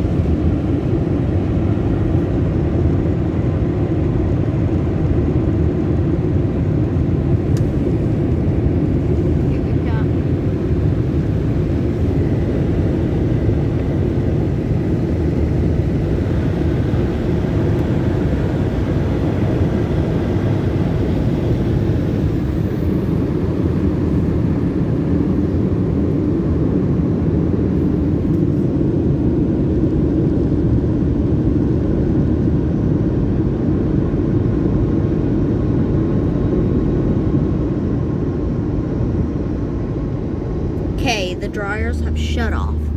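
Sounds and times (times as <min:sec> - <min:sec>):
dryer blowers roaring: 0:40.8 - 0:42.9.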